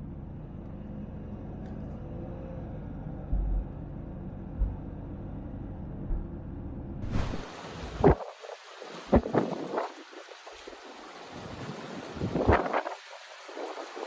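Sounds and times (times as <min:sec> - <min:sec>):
steady low rumble: 0:02.6 - 0:08.2
dull low thumps: 0:03.2 - 0:08.1.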